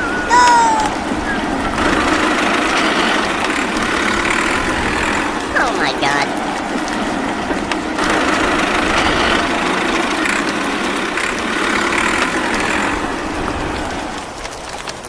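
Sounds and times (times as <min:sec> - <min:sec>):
small motor running: 0:00.0 - 0:14.4.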